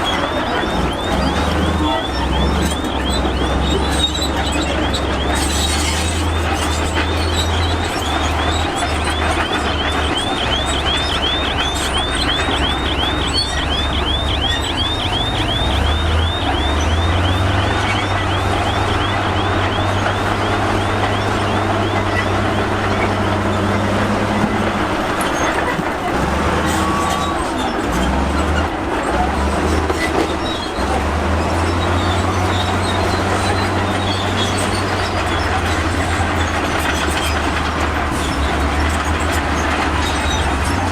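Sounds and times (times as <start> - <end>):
heavy machinery diesel engine drone: 0.0 - 40.9
high squeaky chirps: 0.1 - 23.8.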